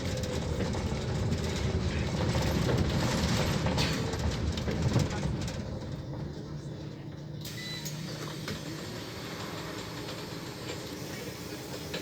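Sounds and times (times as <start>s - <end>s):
bus diesel engine humming: 8.1s - 12.0s.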